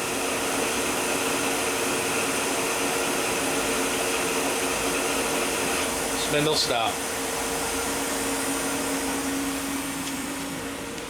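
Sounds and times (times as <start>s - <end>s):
machining center whirring hum: 0.0s - 11.0s.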